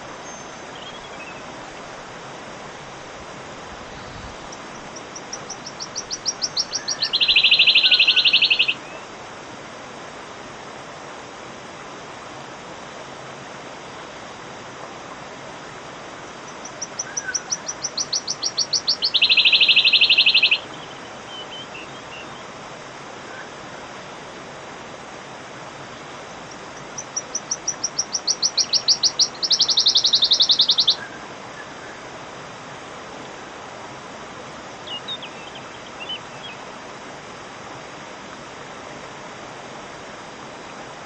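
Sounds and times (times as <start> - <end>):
steady hiss: 0.0 - 41.0
bird singing with shivering trill: 0.2 - 1.4, 4.0 - 9.0, 16.6 - 22.4, 26.5 - 31.0, 34.8 - 36.6.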